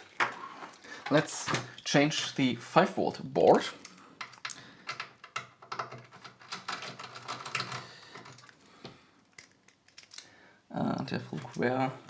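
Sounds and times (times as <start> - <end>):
small parts and tools clicking: 3.7 - 8.6, 9.2 - 10.4.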